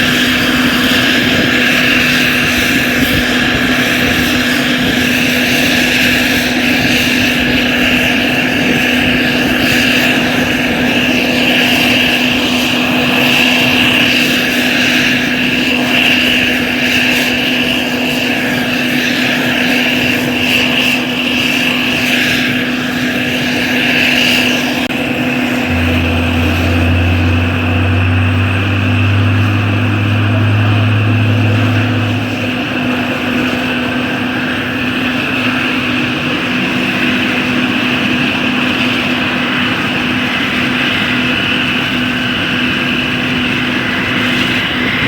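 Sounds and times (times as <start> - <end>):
helicopter rotor noise: 0.0 - 45.0
high turbine engine whine: 0.0 - 45.0
constant low hum: 19.1 - 37.9.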